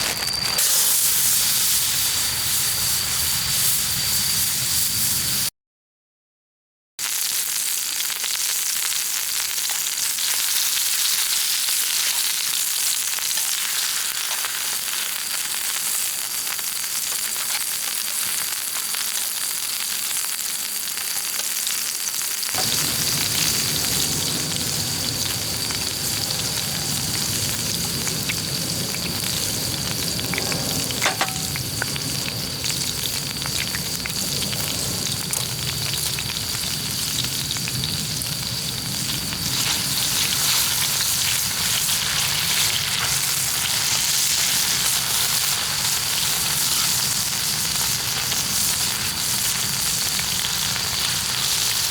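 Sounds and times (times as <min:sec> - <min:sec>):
food sizzling over a campfire: 0:00.0 - 0:05.5, 0:07.0 - 0:51.9
lower fuller sizzling layer: 0:22.6 - 0:40.0.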